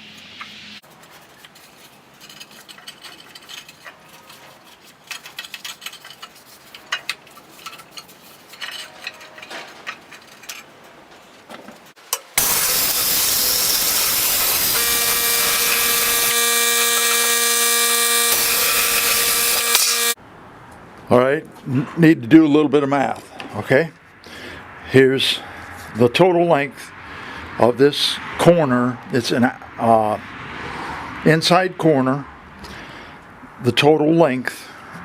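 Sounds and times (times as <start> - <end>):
handling clicks and knocks: 0.9 - 12.3
machine rushing hiss: 12.4 - 16.3
machine whine: 12.4 - 20.2.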